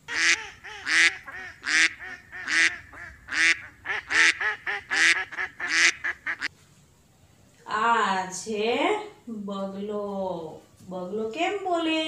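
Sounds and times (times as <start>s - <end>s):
duck quacking: 0.0s - 6.5s.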